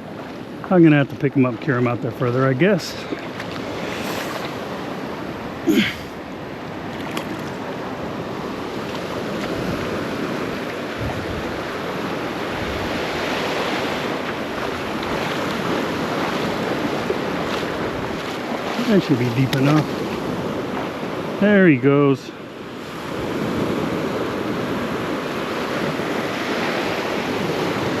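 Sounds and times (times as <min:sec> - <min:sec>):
ocean surf washing in: 0:00.0 - 0:28.0
wind buffeting the microphone: 0:06.7 - 0:21.4.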